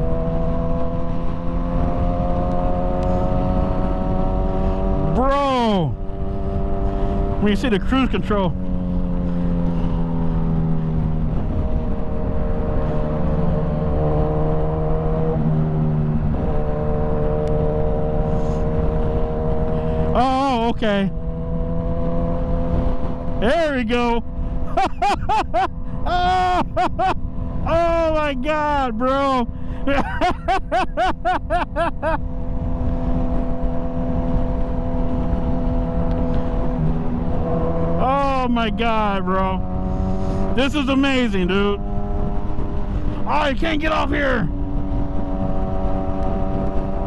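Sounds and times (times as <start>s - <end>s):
motorcycle engine cruising: 0.0s - 47.0s
wind rumble on microphone: 8.2s - 20.2s, 20.8s - 25.1s, 32.0s - 38.0s, 38.9s - 47.0s
excited laughter: 24.7s - 27.2s, 29.8s - 32.2s
wind rush: 30.9s - 38.4s, 39.4s - 47.0s.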